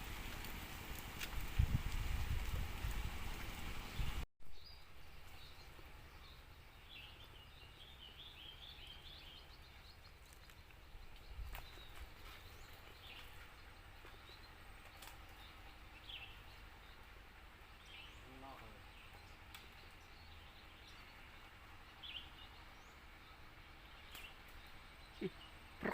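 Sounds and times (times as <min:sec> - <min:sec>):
small bird chirping: 0:03.8 - 0:25.9
faint click: 0:24.1 - 0:24.6.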